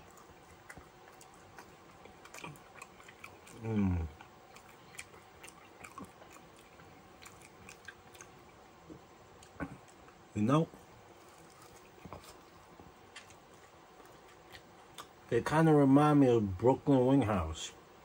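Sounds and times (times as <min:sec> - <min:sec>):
person chewing: 0:00.0 - 0:10.2, 0:11.1 - 0:15.2
person humming: 0:03.5 - 0:04.2.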